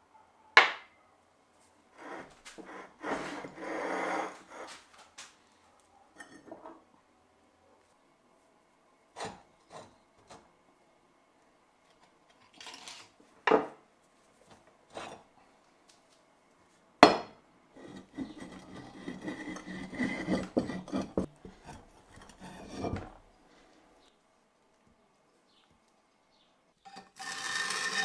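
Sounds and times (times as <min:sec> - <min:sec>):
metal scraping and rubbing: 0:02.0 - 0:04.9, 0:17.8 - 0:23.3, 0:26.9 - 0:28.0.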